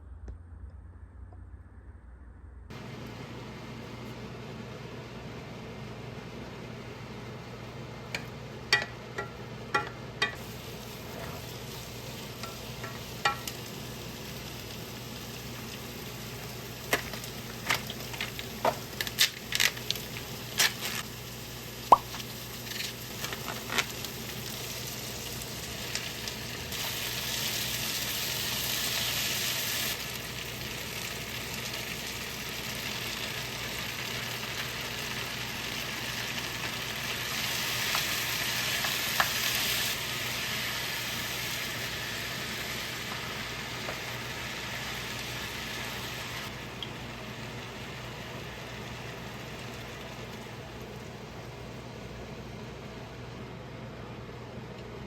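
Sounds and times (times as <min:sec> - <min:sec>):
utensils clinking against pan: 0:08.2 - 0:10.4, 0:12.4 - 0:13.6
food sizzling in a pan: 0:08.2 - 0:52.5.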